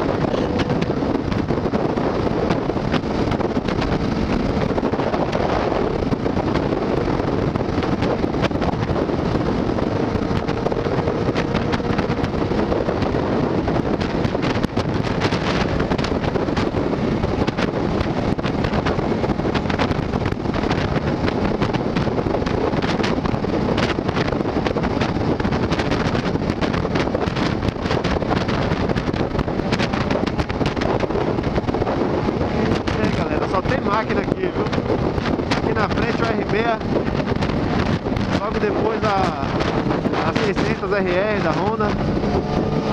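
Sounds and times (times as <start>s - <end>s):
vehicle running: 0.0s - 42.9s
wind buffeting microphone: 0.0s - 42.9s.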